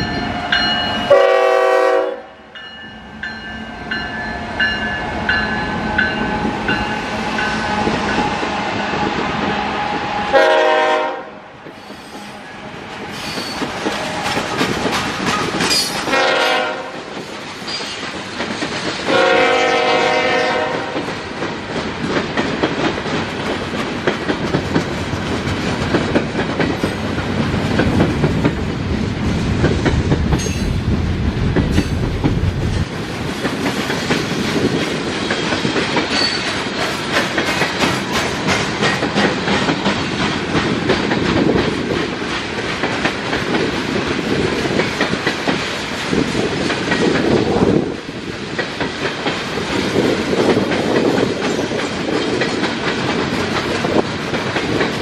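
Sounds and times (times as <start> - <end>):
train horn: 0.4 - 2.5, 6.2 - 11.6, 16.0 - 17.1, 19.1 - 21.1
train wheels clacking over rail joints: 13.0 - 28.7, 31.5 - 55.0.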